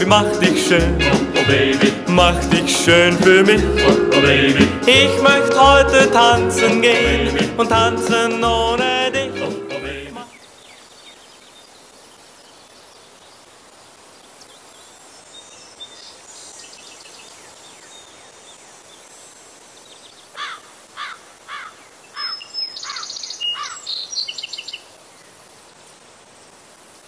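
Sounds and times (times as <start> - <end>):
faint outdoor background noise: 0.0 - 7.1, 8.1 - 27.0
songbird singing: 10.1 - 13.5, 14.2 - 19.1, 19.8 - 25.4.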